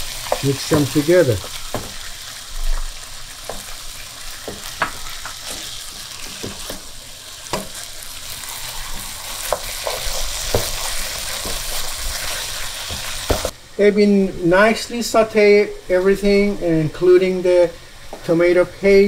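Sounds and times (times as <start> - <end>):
food sizzling in hot oil: 0.0 - 13.6.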